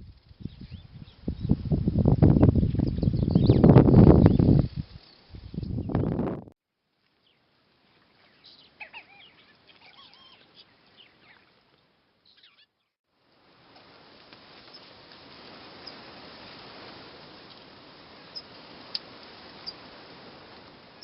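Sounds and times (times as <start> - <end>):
open-air hiss: 3.7 - 5.6, 6.7 - 12.4, 13.1 - 21.0
faint bird chirps: 8.1 - 11.5.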